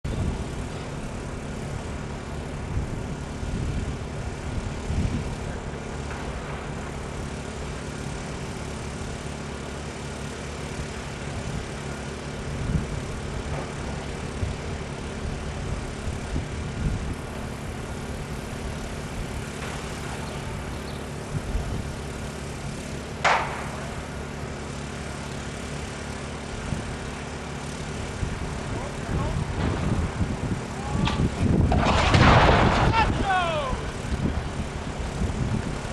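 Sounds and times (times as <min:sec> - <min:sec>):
machinery engine hum: 0:00.0 - 0:35.9
low rumbles: 0:28.0 - 0:35.9.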